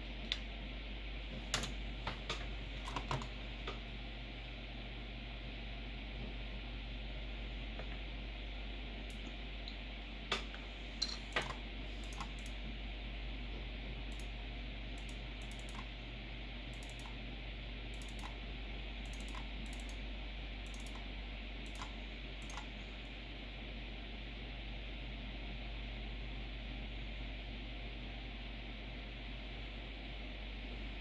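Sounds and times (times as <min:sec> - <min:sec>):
computer cooling fans whirring: 0:00.0 - 0:31.0
keyboard clicks: 0:01.5 - 0:03.3, 0:10.3 - 0:12.6, 0:14.1 - 0:14.3, 0:15.0 - 0:15.9, 0:16.7 - 0:17.2, 0:17.9 - 0:18.4, 0:19.0 - 0:20.0, 0:20.6 - 0:22.7.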